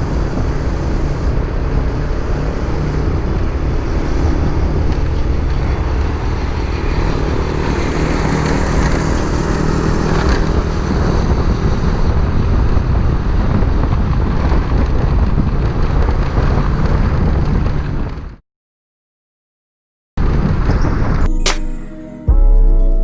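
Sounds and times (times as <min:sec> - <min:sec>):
wind buffeting microphone: 0:00.0 - 0:18.4, 0:20.2 - 0:21.3.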